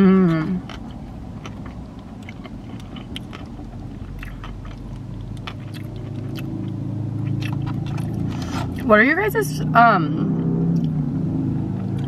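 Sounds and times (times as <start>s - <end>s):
vehicle engine hum: 0.0s - 12.0s
close-up chewing: 0.3s - 8.9s.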